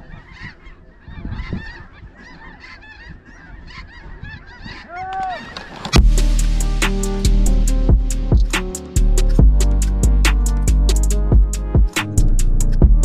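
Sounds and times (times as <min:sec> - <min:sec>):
geese honking: 0:00.0 - 0:09.9
low rumble: 0:06.0 - 0:13.0.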